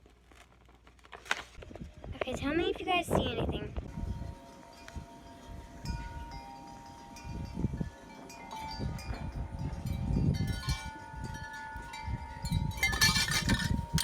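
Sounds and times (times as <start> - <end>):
soft chime tones: 4.0 - 12.8.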